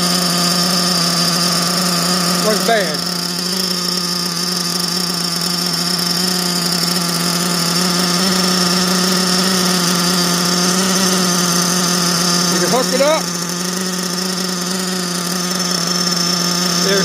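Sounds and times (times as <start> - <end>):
rc truck nitro engine running: 0.0 - 17.0.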